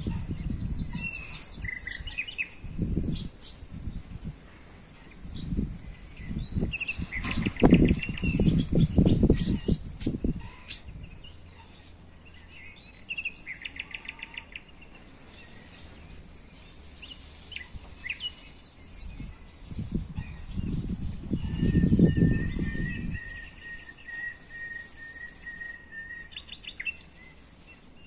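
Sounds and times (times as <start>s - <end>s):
bird chirps: 0.0s - 3.7s, 5.1s - 28.0s
songbird trilling: 5.1s - 15.8s, 17.0s - 28.0s.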